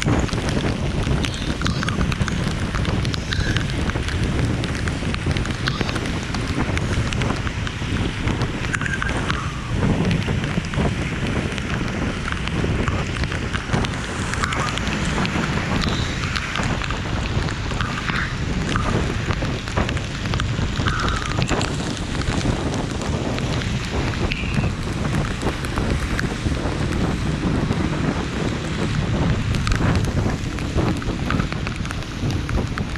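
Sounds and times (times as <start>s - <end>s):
low rumble: 0.0s - 32.9s
rain falling: 0.0s - 32.9s.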